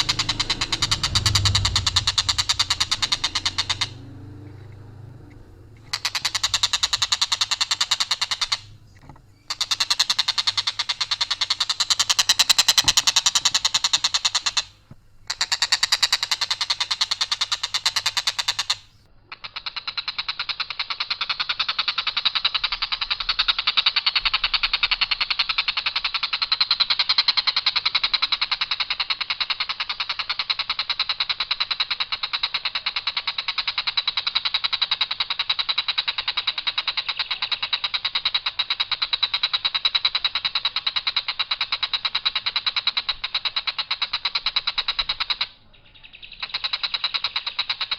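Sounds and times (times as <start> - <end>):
kingfisher rattling trill: 0.0 - 23.2.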